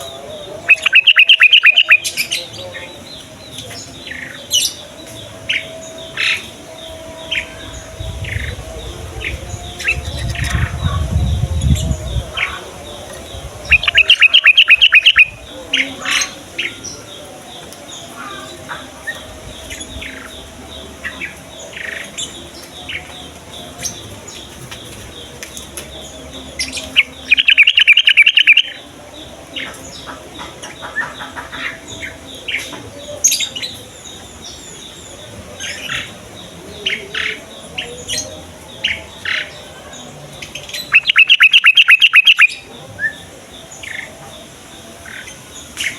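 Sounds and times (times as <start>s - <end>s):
bird singing bubbling phrases: 0.0s - 2.8s, 7.9s - 16.0s, 26.9s - 29.7s, 40.4s - 44.1s
bird chirps: 0.0s - 11.8s, 12.4s - 15.9s, 19.6s - 28.9s, 40.4s - 44.1s.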